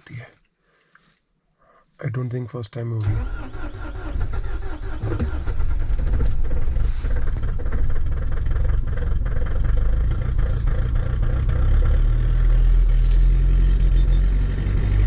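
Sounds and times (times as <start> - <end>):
diesel engine clattering: 3.1 - 15.0.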